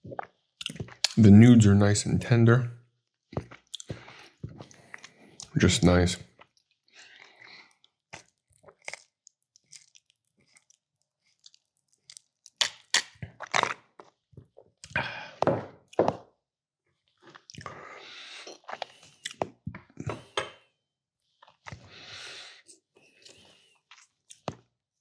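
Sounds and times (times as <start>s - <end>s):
person chewing food: 0.6s - 1.3s, 7.2s - 13.1s
small mouth clicks: 0.6s - 1.3s, 12.6s - 13.1s.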